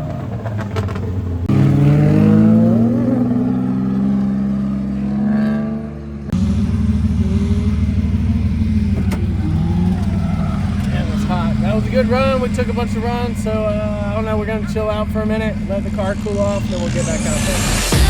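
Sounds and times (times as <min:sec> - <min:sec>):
car engine running: 0:06.3 - 0:18.0.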